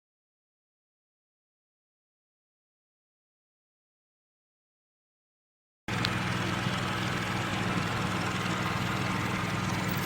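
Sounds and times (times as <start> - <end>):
steady mechanical hum: 5.9 - 10.0.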